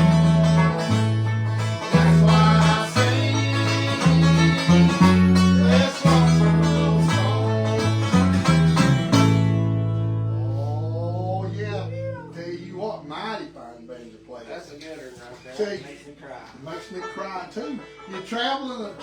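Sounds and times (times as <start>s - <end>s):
banjo picking: 0.0s - 13.0s, 16.6s - 19.0s
bluegrass band playing: 0.0s - 13.0s, 16.6s - 19.0s
bass line: 0.0s - 13.4s.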